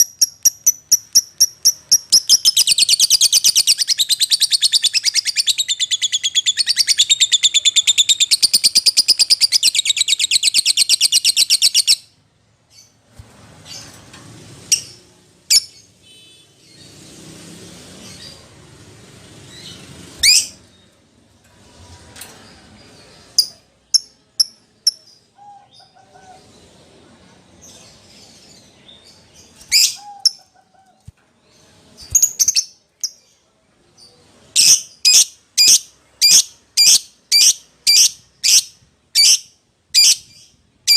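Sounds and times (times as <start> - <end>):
bird chirps: 0.0 - 13.0, 27.7 - 40.9.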